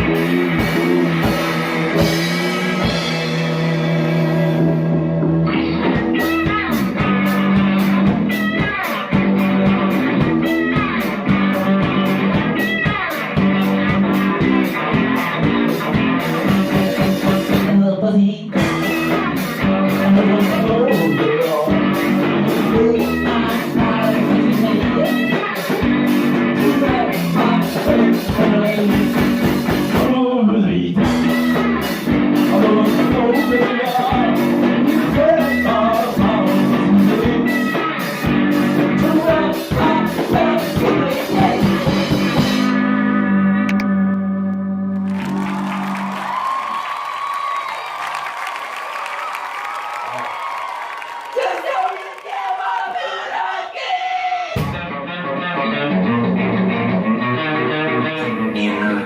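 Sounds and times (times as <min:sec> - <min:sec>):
person singing: 0:00.0 - 0:08.0, 0:16.4 - 0:42.8, 0:58.0 - 0:59.0
guitar and drums: 0:00.0 - 0:48.0, 0:54.4 - 0:59.0.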